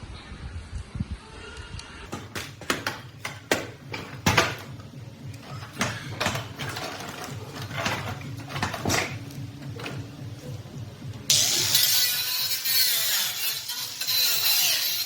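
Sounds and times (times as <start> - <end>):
hand tools knocking on metal: 2.1 - 10.3
metal scraping: 2.1 - 13.6.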